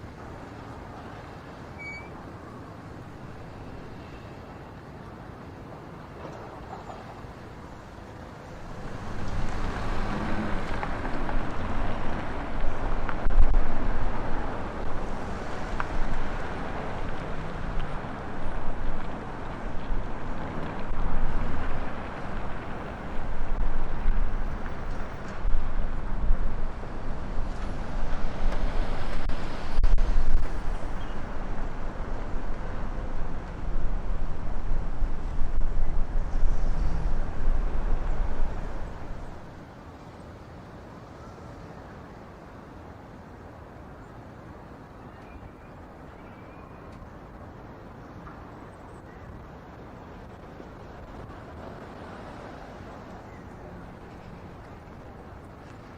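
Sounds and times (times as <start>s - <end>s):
wind buffeting microphone: 8.6s - 39.6s.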